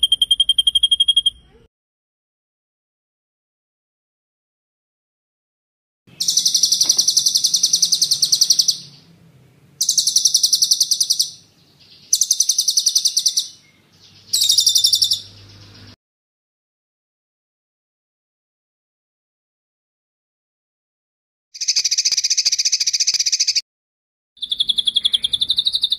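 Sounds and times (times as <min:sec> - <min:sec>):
songbird trilling: 0:06.1 - 0:09.2, 0:09.8 - 0:16.0, 0:21.6 - 0:23.6, 0:24.4 - 0:25.9.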